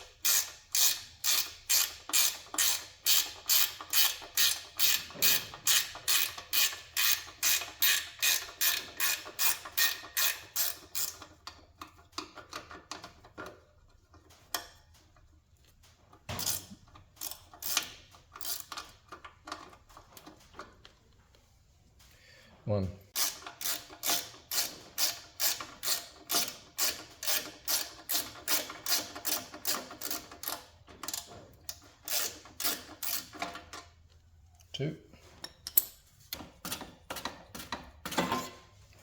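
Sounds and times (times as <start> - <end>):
ratchet wrench clicking: 0.2 - 11.4, 23.2 - 33.6
tools and parts knocking: 0.3 - 15.0, 23.2 - 33.9, 35.4 - 38.6.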